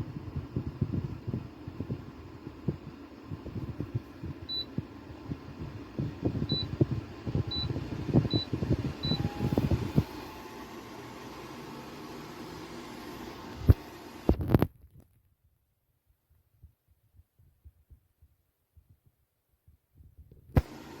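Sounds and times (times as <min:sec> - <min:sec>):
wind buffeting microphone: 0:00.0 - 0:10.2
steady low hum: 0:00.0 - 0:14.6.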